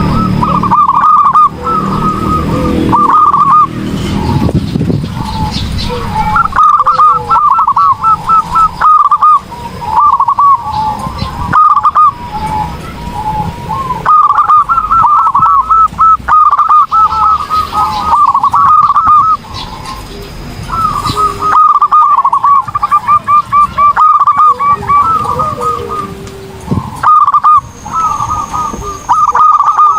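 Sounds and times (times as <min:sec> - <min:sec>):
dove cooing: 0:00.0 - 0:29.9.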